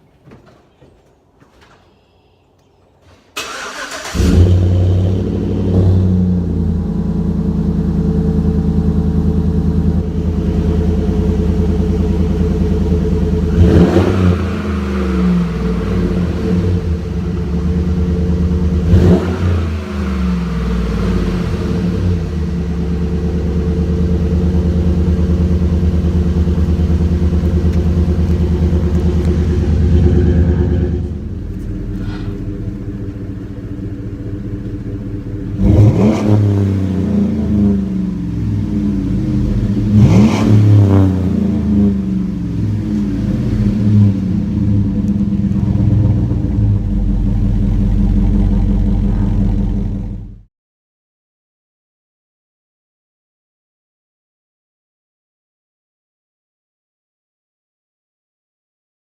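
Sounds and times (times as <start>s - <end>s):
truck engine starting and idling: 3.0s - 50.5s
engine revving: 3.4s - 50.5s.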